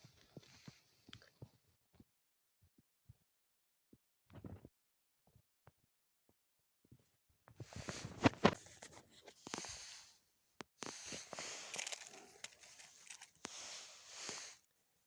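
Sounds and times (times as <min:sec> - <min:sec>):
matches striking and crackling: 0:10.8 - 0:14.6.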